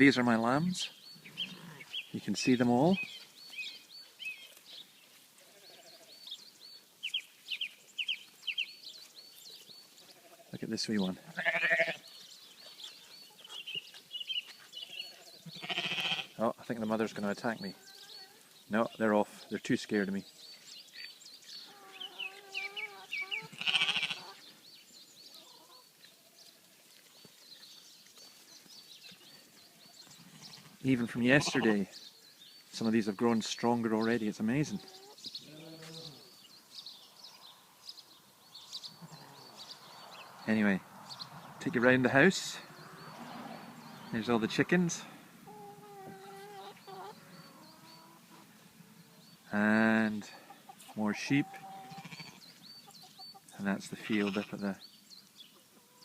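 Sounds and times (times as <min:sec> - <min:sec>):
small birds singing: 0:00.0 - 0:56.0
songbirds chirping: 0:00.0 - 0:56.0
lamb bleating: 0:05.5 - 0:06.1, 0:11.2 - 0:12.0, 0:15.0 - 0:16.4, 0:23.4 - 0:24.4, 0:31.3 - 0:31.8, 0:51.8 - 0:52.5, 0:54.1 - 0:54.6.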